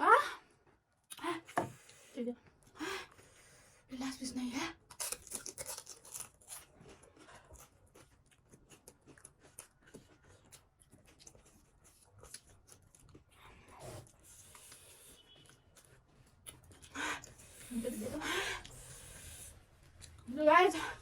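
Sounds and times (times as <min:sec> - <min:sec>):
chewing crisp food: 0:04.7 - 0:20.3
soft breath: 0:16.9 - 0:19.7.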